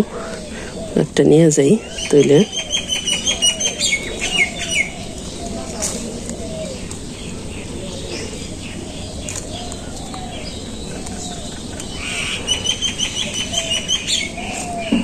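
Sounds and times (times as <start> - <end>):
songbirds arched calls: 0.0 - 15.0
rapid high bird chirps: 1.8 - 5.6.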